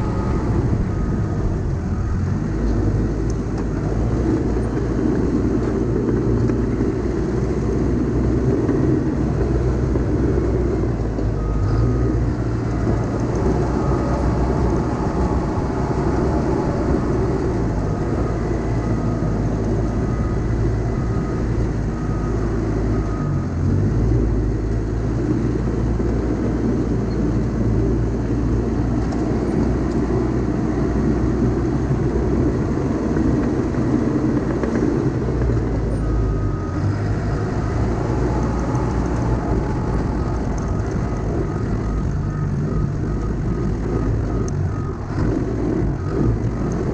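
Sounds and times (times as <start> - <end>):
backup alarm beeping: 0.0 - 4.6, 9.6 - 23.4, 36.0 - 45.0
diesel engine under load: 0.0 - 46.9.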